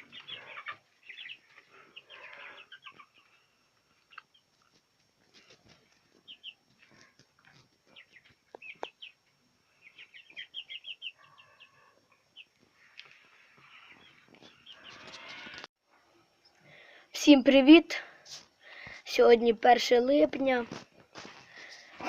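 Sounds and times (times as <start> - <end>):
chicks peeping: 0.0 - 15.7.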